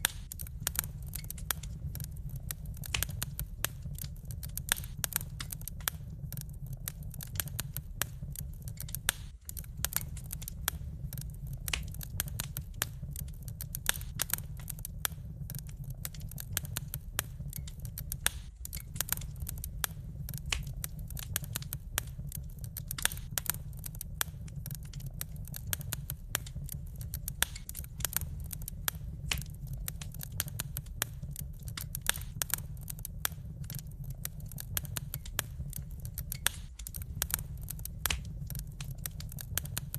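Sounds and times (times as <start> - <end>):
logs crackling and popping: 0.0 - 39.9
low rumble of flames: 0.0 - 39.9.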